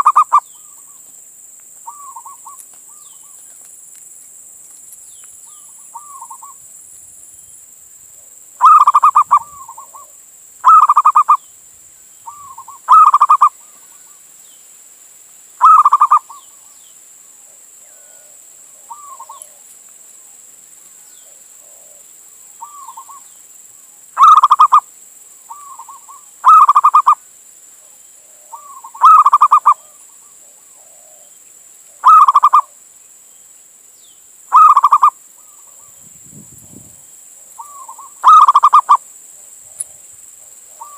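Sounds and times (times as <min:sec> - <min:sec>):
dove cooing: 0:00.0 - 0:00.9, 0:01.8 - 0:03.2, 0:05.5 - 0:06.6, 0:08.6 - 0:11.4, 0:12.3 - 0:14.2, 0:15.6 - 0:16.5, 0:17.8 - 0:19.6, 0:21.2 - 0:23.2, 0:24.2 - 0:24.8, 0:25.5 - 0:27.2, 0:28.2 - 0:31.3, 0:31.9 - 0:32.7, 0:34.5 - 0:35.9, 0:37.6 - 0:39.0, 0:40.4 - 0:40.9
faint steady hiss: 0:00.0 - 0:40.9.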